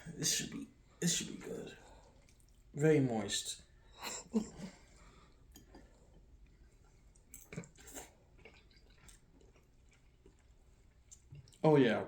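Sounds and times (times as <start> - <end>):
quiet chewing: 1.7 - 2.7, 4.4 - 11.7.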